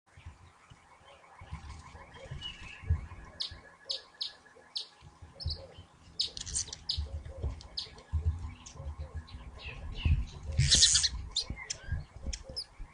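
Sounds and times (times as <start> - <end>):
low thumps and knocks: 0.1 - 3.6, 6.9 - 12.9
small birds chirping: 0.1 - 12.9.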